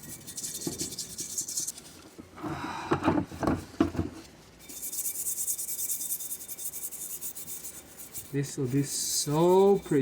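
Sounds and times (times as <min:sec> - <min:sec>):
brush scrubbing metal: 0:00.0 - 0:02.0, 0:04.6 - 0:10.0
handling knocks and scraping: 0:00.0 - 0:04.8.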